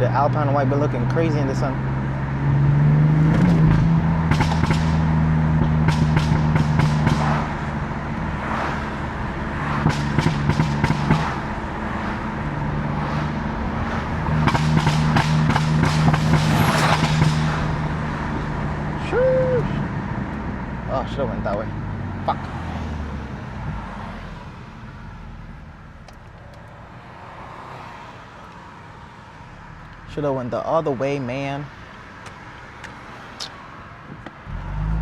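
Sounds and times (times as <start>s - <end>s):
car engine cruising: 0.0s - 35.0s
exhaust crackles: 34.5s - 35.0s.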